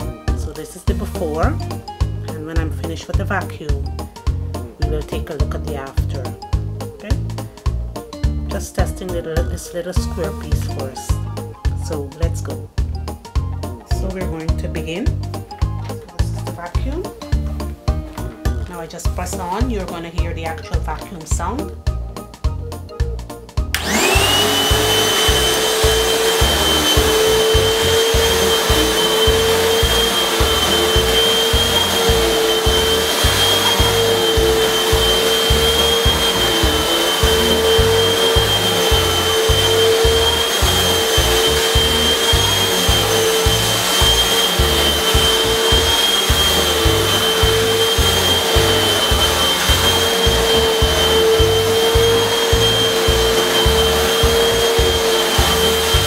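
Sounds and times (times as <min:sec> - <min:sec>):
vacuum cleaner motor whining: 0:23.8 - 0:56.0.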